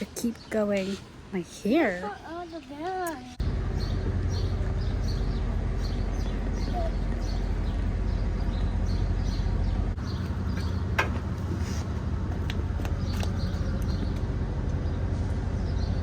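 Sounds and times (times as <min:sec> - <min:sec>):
steady low hum: 0:00.0 - 0:16.0
faint bird chirps: 0:03.8 - 0:10.7.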